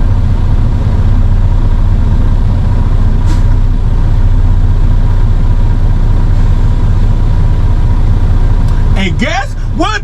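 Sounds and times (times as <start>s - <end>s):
diesel engine rumbling: 0.0s - 10.0s.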